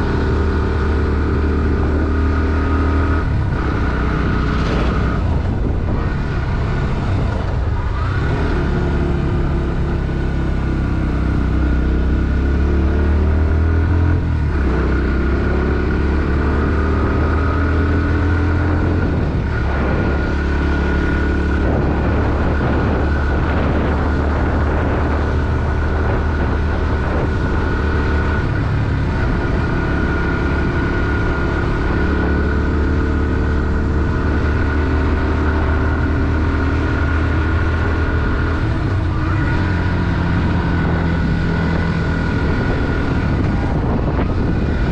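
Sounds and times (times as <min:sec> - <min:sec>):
motorcycle engine running under load: 0:13.9 - 0:44.9.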